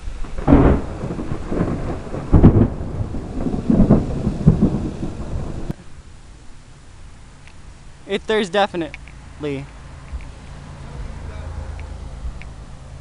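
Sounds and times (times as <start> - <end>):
thunder crack and rolling peals: 0.0 - 5.8.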